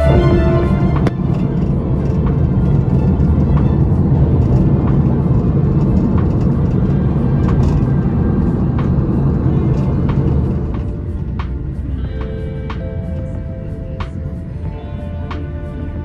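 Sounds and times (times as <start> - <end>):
loud low rumble: 0.0 - 12.2.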